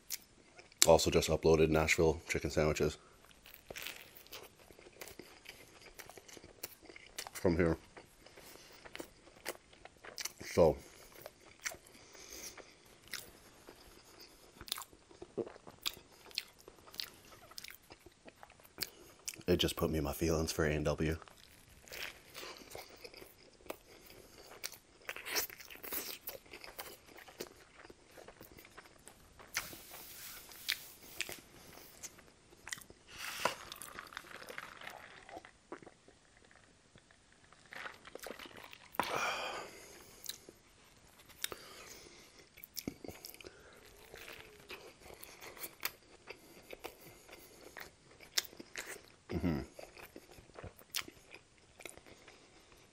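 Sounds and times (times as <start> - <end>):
wet chewing with smacks: 3.3 - 19.5, 21.2 - 40.6, 41.2 - 52.8
sip from a drink cup: 33.1 - 35.5.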